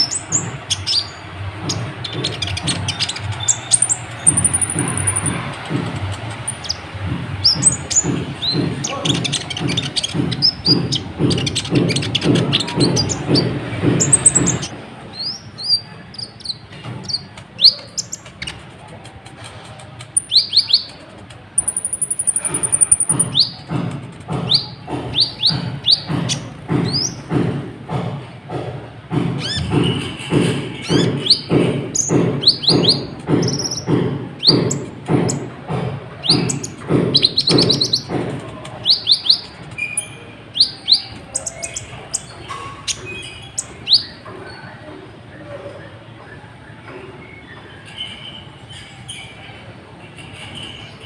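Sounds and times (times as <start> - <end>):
bird chirping high: 0.0 - 18.6, 21.6 - 23.7, 30.8 - 35.4, 38.8 - 44.2.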